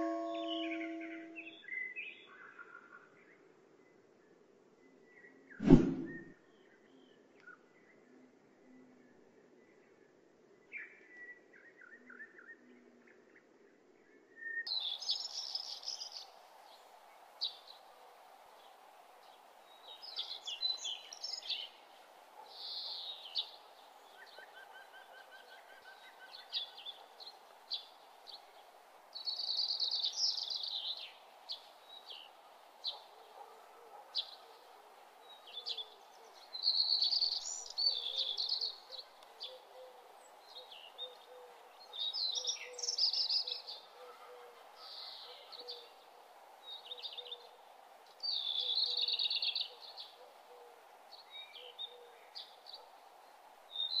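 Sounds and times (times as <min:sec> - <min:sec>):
birds chirping and trilling: 0:00.0 - 0:02.2.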